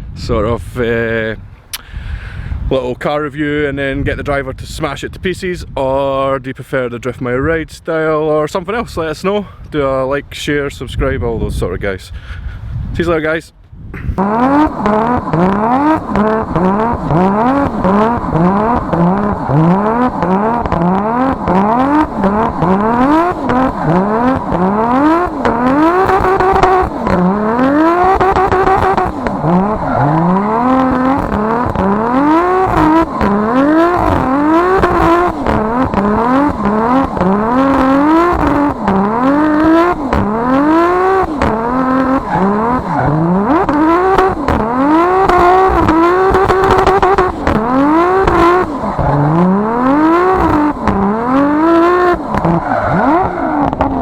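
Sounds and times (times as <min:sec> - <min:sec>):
car engine revving hard: 0:14.2 - 0:54.0.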